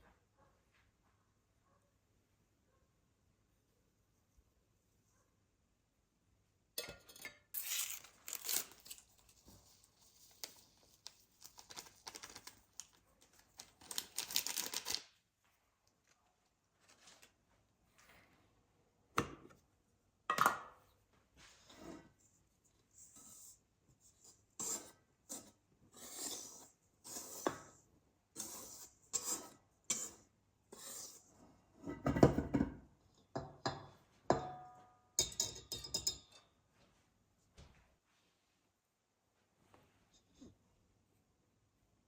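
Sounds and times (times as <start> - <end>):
dishes and utensils clinking: 6.8 - 7.8, 33.4 - 36.5.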